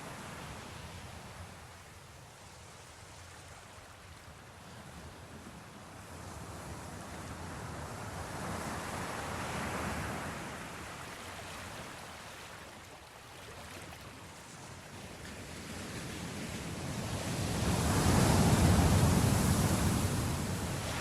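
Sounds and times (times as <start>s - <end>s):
ocean waves washing on shore: 0.0s - 21.0s.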